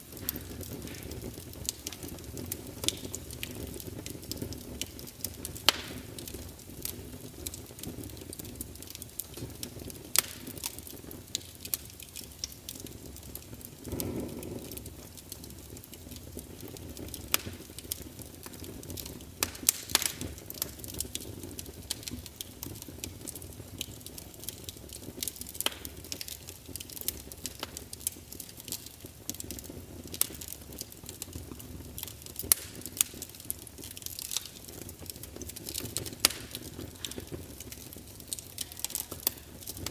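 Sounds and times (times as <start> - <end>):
wood fire crackling: 0.0 - 39.9
rush of flame: 13.3 - 15.8.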